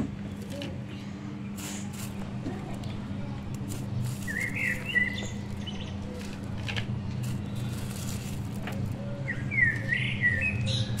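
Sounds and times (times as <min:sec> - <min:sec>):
steady low hum: 0:00.0 - 0:11.0
small bird chirping: 0:03.9 - 0:06.4.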